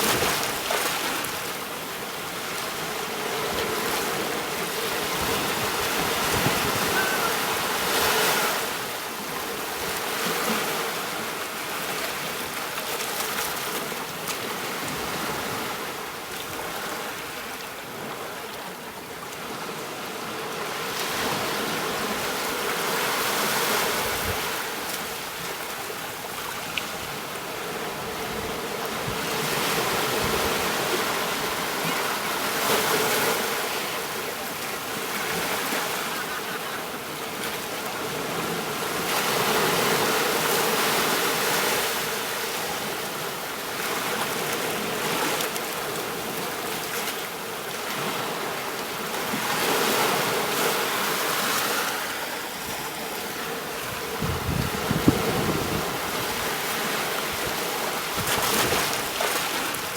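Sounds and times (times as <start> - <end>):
ocean waves breaking: 0.0 - 12.4, 27.1 - 59.9.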